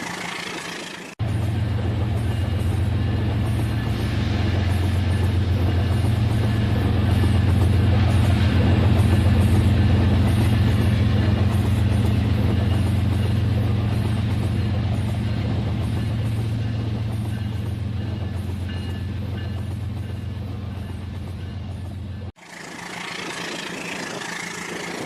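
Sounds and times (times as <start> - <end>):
toy train clatter on track: 22.4 - 25.0
toy train motor hum: 22.4 - 25.0.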